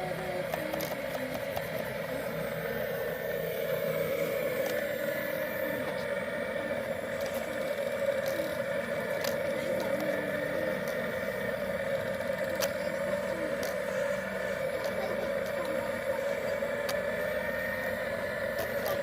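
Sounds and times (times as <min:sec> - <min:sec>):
faint voices: 0:00.0 - 0:19.0
model vehicles whirring: 0:00.0 - 0:19.0.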